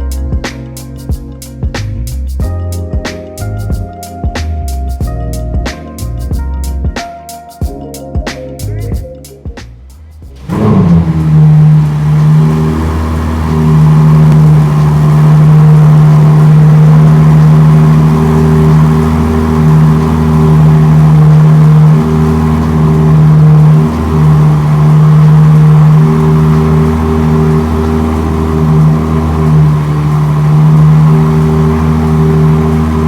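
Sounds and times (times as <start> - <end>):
sports car engine starting and idling: 10.3 - 33.0.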